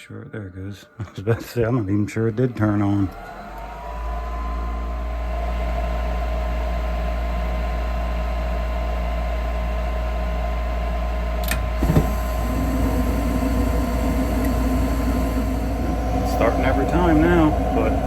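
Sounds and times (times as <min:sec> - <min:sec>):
inducer motor hum and whine: 0:00.0 - 0:18.0
gas burners rushing: 0:01.6 - 0:05.0, 0:11.4 - 0:18.0
furnace click: 0:11.4 - 0:15.6.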